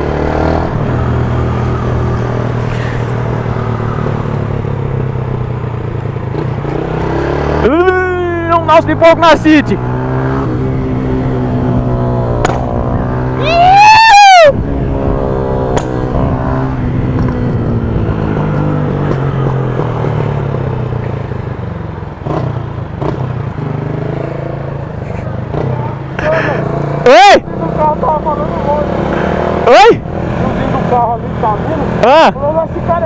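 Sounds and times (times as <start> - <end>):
motorcycle throttle blip: 12.4 - 12.7
sharp exhaust pops: 12.4 - 12.7.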